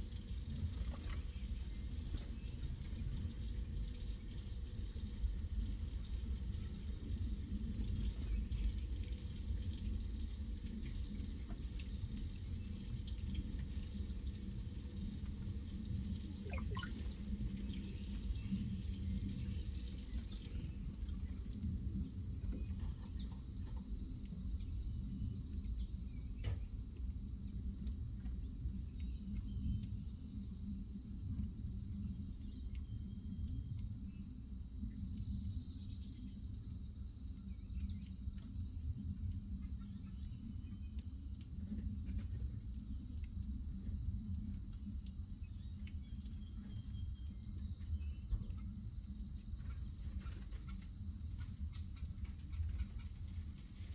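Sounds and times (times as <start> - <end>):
sharp rising bird chirp: 16.5 - 17.4.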